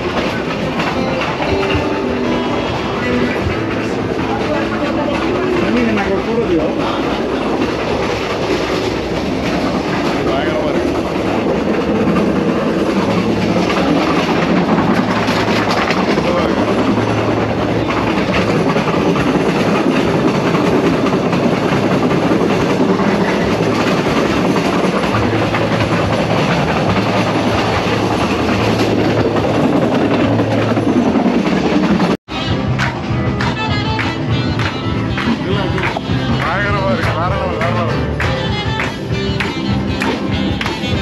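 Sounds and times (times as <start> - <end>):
train wheels running on rails: 0.0 - 41.0.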